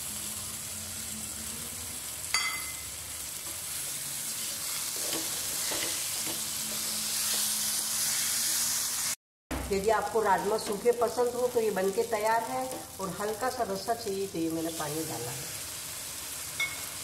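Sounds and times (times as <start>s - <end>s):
beans sizzling in hot oil: 0.0s - 9.2s, 9.8s - 17.0s.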